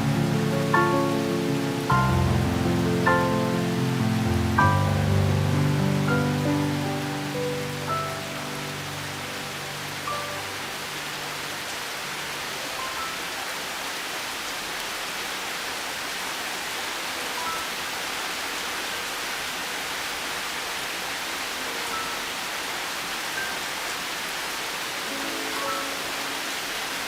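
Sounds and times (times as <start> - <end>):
soft piano notes: 0.0 - 13.5, 25.0 - 26.8
steady rain: 0.0 - 27.0.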